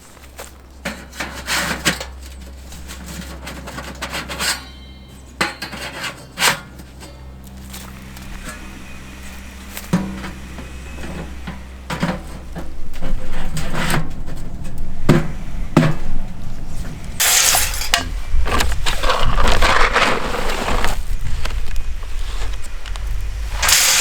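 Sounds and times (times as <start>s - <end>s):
low rumble: 7.2s - 24.0s
rough rushing rustling noise: 12.6s - 24.0s.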